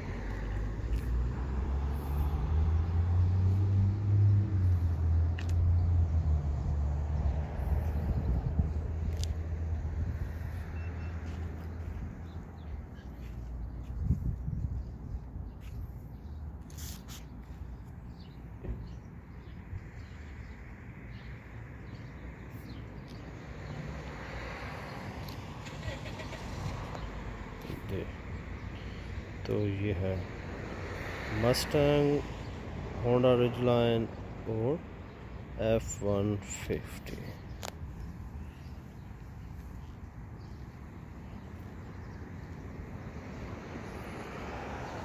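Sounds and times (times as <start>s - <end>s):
small birds chirping: 4.7s - 23.9s, 26.4s - 31.0s, 33.9s - 44.3s.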